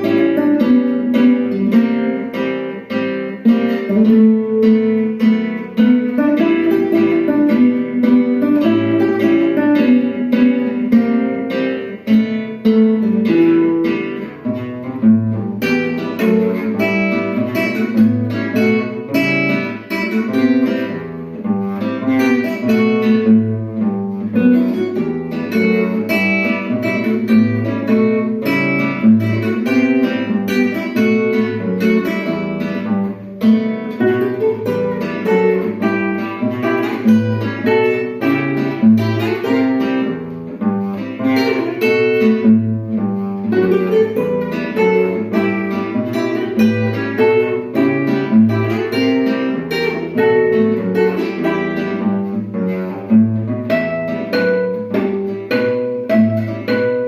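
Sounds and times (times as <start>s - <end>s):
two guitars playing duet: 0.0s - 57.0s.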